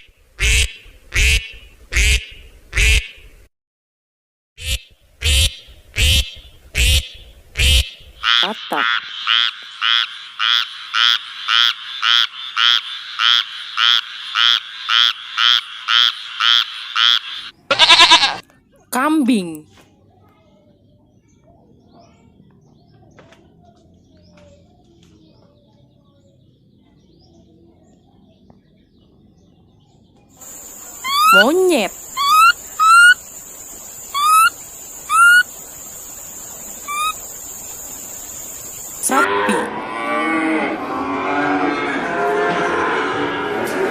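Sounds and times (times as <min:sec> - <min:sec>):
monkey calling: 0:06.1 - 0:18.4, 0:30.4 - 0:33.2, 0:34.0 - 0:35.5, 0:36.7 - 0:37.4
frog croaking: 0:07.6 - 0:18.4, 0:30.4 - 0:39.8.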